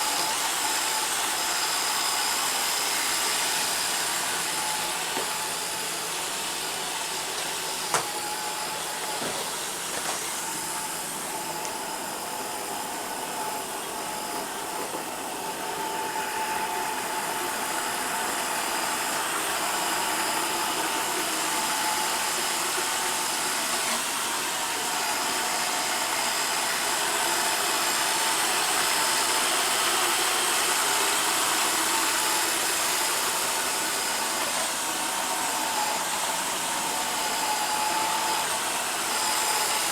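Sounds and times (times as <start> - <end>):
robot vacuum whirring: 0.0 - 39.9.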